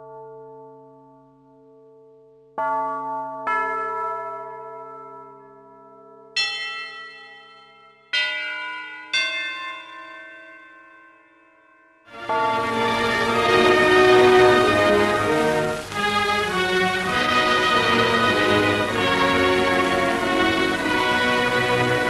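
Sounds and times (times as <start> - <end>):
bells ringing: 2.6 - 22.0
orchestra playing: 12.1 - 22.0.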